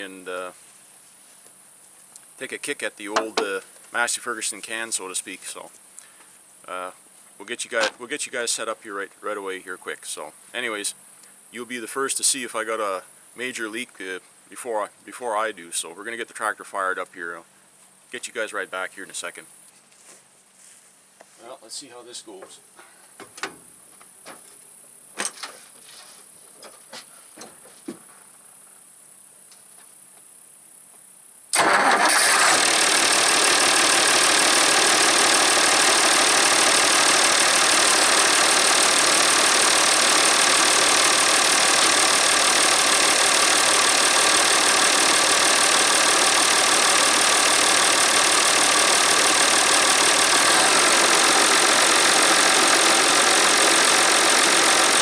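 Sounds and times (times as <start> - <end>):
tractor diesel engine running: 3.0 - 4.0, 31.6 - 55.0.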